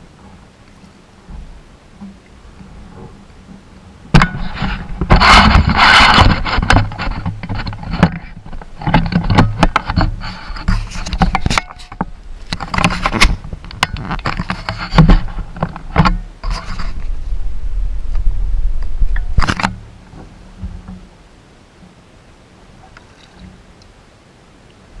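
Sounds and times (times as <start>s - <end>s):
hard objects knocking and scraping: 4.2s - 17.0s.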